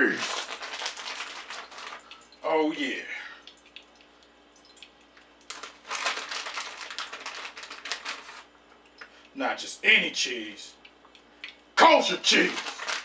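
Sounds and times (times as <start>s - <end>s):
package crinkling and rustling: 0.0s - 2.3s, 5.4s - 8.6s, 11.9s - 13.0s.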